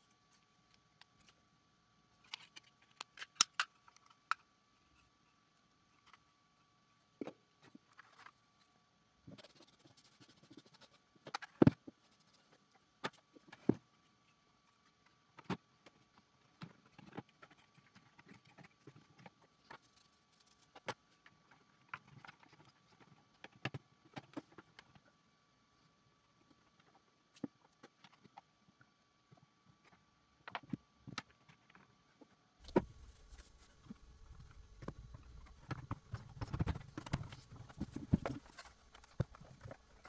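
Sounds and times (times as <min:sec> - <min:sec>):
plastic clicks and knocks: 0:32.6 - 0:40.0.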